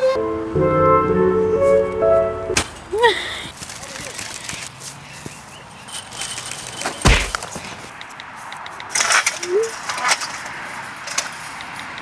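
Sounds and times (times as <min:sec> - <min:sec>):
sharp kick impact: 0:07.0 - 0:07.4.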